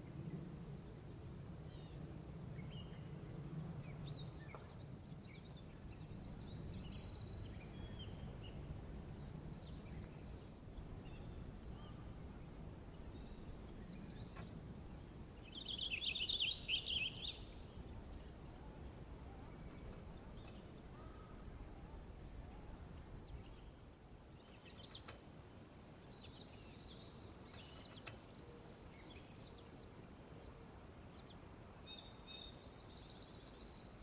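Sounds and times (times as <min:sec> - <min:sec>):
steady low rumble: 0:00.0 - 0:24.2
birds twittering rapidly: 0:01.7 - 0:34.0
small birds chirping: 0:03.8 - 0:34.0.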